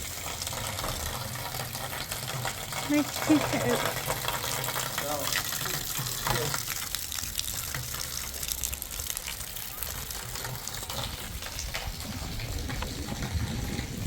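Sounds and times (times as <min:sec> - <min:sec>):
water running and splashing: 0:00.0 - 0:14.0
low rumble: 0:11.6 - 0:14.0.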